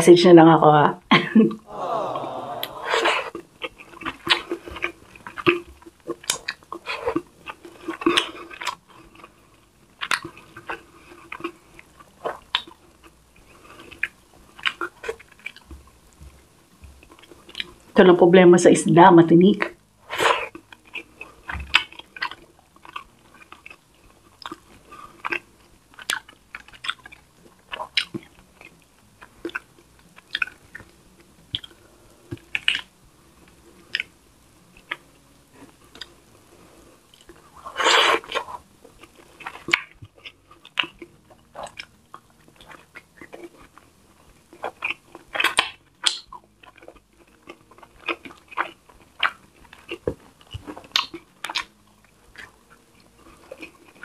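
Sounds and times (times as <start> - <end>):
person chewing food: 1.7 - 17.9, 19.7 - 54.0
wet mouth clicks and smacks: 3.2 - 9.3, 10.0 - 13.0, 17.0 - 17.8, 19.6 - 30.9, 31.5 - 32.9, 33.9 - 34.1, 37.1 - 43.8, 44.5 - 52.6.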